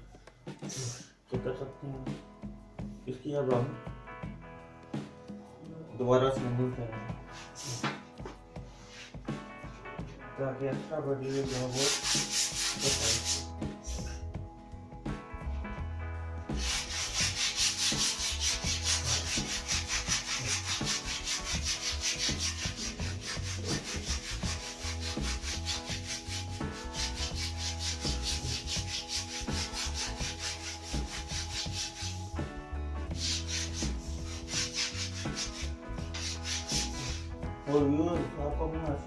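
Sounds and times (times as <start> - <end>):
sandpaper rubbing on wood: 11.2 - 14.2, 16.5 - 32.4, 33.1 - 37.3.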